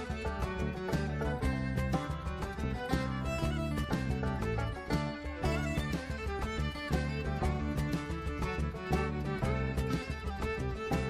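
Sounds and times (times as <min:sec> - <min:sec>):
lively string music with steady beat: 0:00.0 - 0:11.0.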